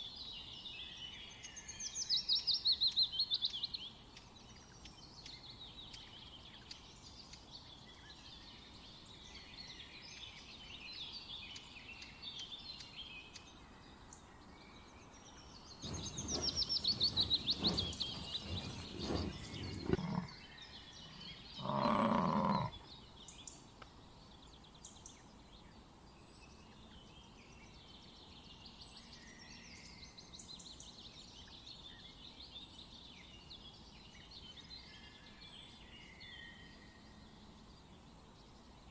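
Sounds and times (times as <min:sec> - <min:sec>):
birds singing and chirping: 0:15.8 - 0:20.4.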